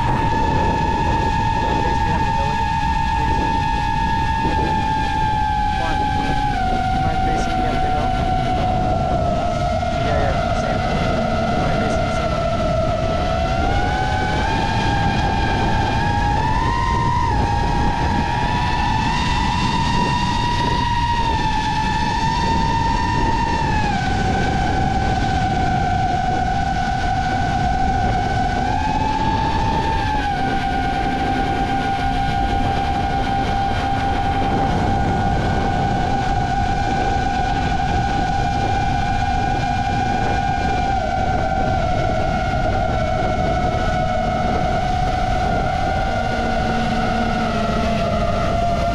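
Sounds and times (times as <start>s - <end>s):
rough rushing noise: 0.0s - 16.4s
drone motors whining: 0.0s - 48.9s
wind rushing over microphone: 0.0s - 48.9s.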